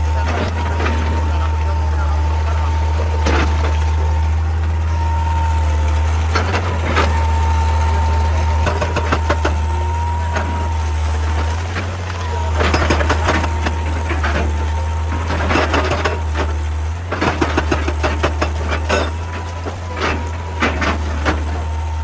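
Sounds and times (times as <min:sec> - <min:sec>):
excavator diesel engine running: 0:00.0 - 0:22.0
sharp knocks and clatter: 0:15.2 - 0:21.6.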